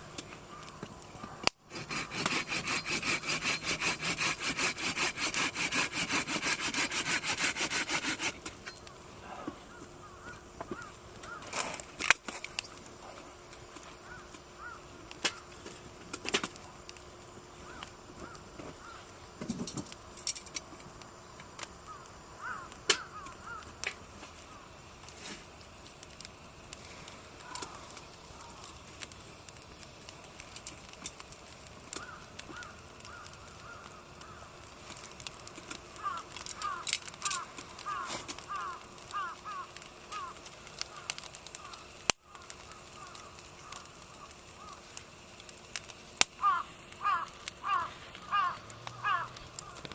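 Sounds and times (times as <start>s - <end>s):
wood fire crackling: 0.0s - 49.9s
bird calling: 7.8s - 11.8s, 13.8s - 15.6s, 17.5s - 19.2s, 21.8s - 23.8s, 27.4s - 28.9s, 31.9s - 34.6s, 36.0s - 45.0s, 46.4s - 49.9s.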